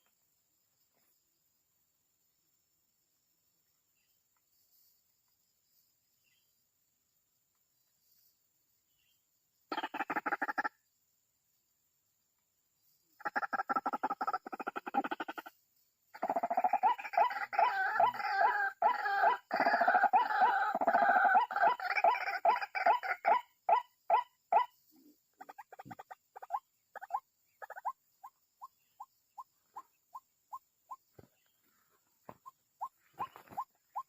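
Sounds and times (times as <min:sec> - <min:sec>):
waterhen calling: 0:32.3 - 0:34.0.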